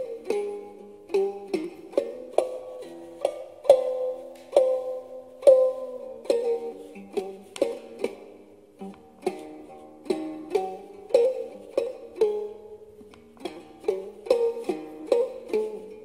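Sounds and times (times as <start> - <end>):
plucked zither notes: 0.0 - 16.0.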